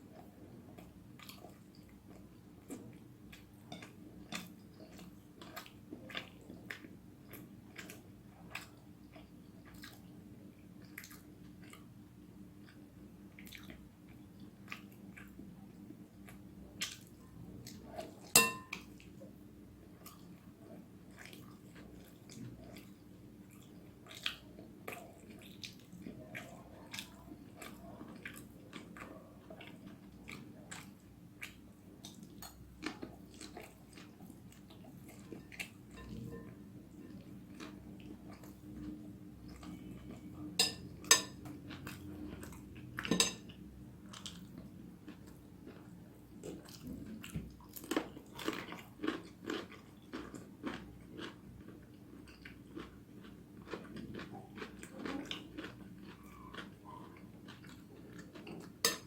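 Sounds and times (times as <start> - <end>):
person chewing noodles: 0.1 - 10.2, 10.8 - 11.9, 12.6 - 19.1, 19.9 - 59.0
utensil clinking against dish: 18.4 - 18.8, 40.6 - 41.4, 43.1 - 43.4.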